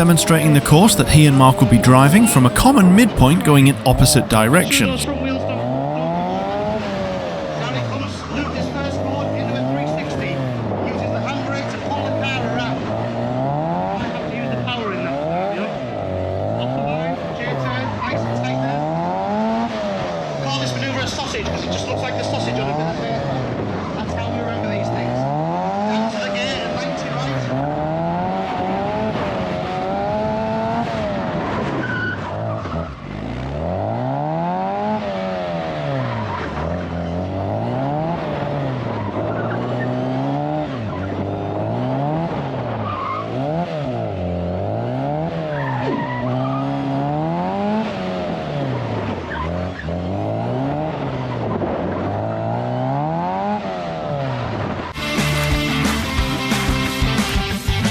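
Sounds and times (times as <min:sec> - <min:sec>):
music: 0:55.0 - 0:57.9.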